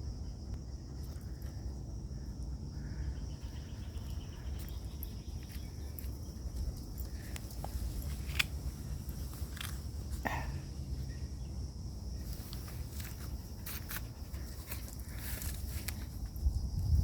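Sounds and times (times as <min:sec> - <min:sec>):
wind buffeting microphone: 0:15.1 - 0:17.0.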